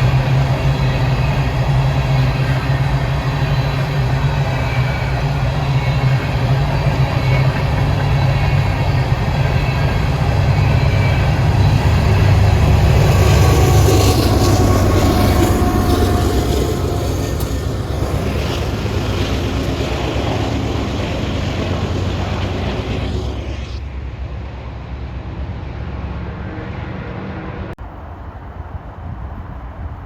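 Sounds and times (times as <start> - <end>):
train wheels clattering on rails: 0.0 - 23.4
diesel locomotive engine hum: 0.0 - 30.0.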